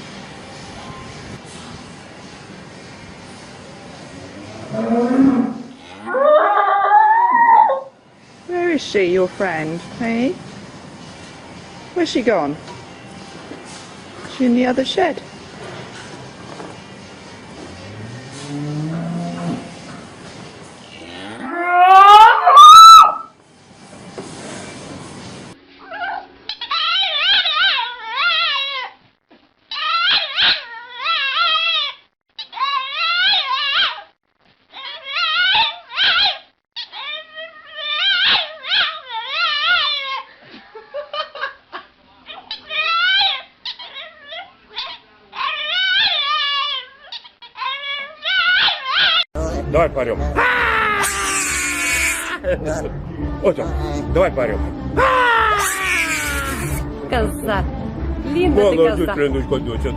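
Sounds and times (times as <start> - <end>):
cow mooing and bellowing: 4.2 - 7.8, 17.7 - 19.9, 20.8 - 23.2
dog howling and whining: 6.0 - 7.9, 21.4 - 23.3, 25.8 - 29.0, 29.7 - 34.1, 34.8 - 40.3, 42.5 - 49.2, 50.4 - 52.4, 55.0 - 56.8.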